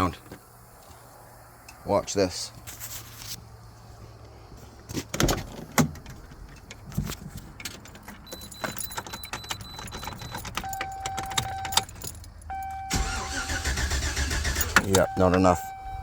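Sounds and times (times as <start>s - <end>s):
keys jangling: 5.9s - 12.8s, 14.4s - 15.1s.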